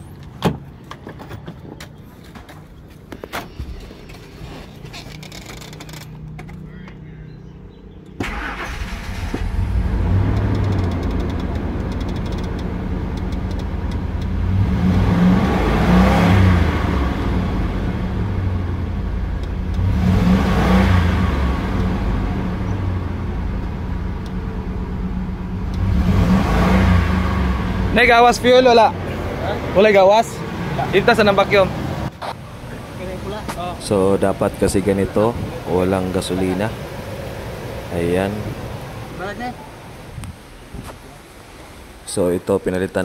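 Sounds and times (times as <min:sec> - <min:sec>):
engine starting and revving: 0:08.2 - 0:18.9, 0:19.6 - 0:29.5.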